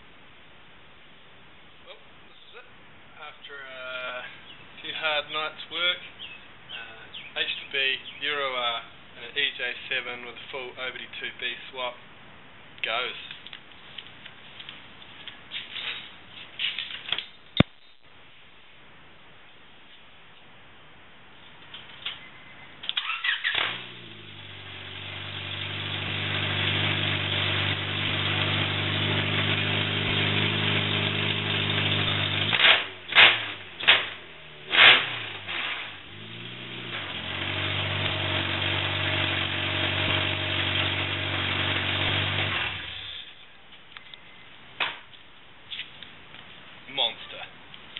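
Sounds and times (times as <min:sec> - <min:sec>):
engine cranking: 0:22.9 - 0:24.4, 0:25.3 - 0:43.1
engine revving sharply: 0:23.0 - 0:43.2
car engine idling loudly: 0:24.0 - 0:33.7.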